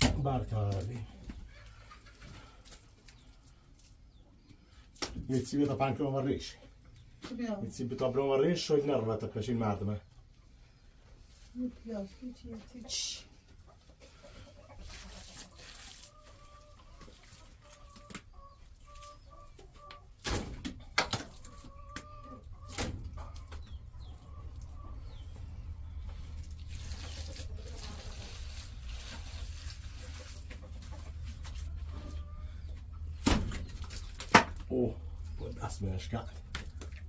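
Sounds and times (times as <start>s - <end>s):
clucking bird calls: 12.7s - 28.4s, 30.0s - 35.7s.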